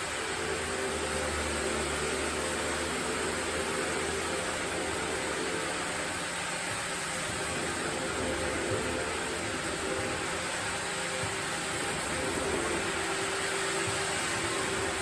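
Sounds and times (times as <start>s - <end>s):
sawmill machinery hissing: 0.0s - 15.0s.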